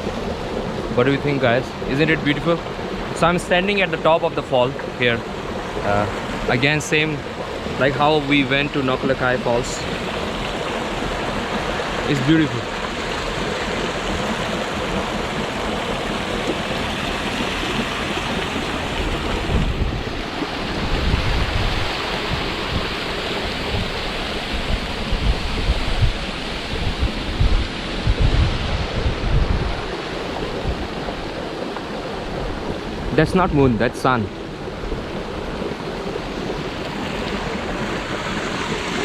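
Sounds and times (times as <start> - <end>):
waterfall rushing: 0.0 - 39.0
wind buffeting microphone: 0.0 - 39.0.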